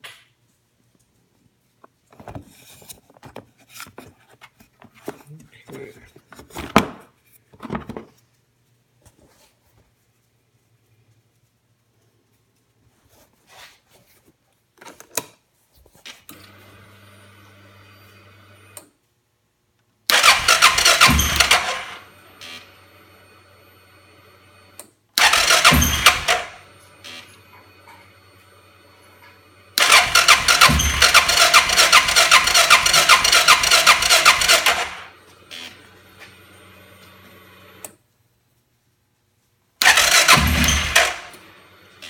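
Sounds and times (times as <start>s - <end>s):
electric starter cranking engine: 20.1s - 22.6s, 25.2s - 28.0s, 29.7s - 35.8s, 39.8s - 41.7s.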